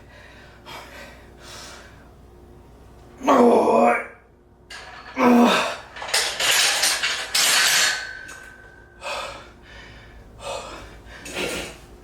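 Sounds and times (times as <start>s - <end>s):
person breathing hard: 8.9s - 11.8s.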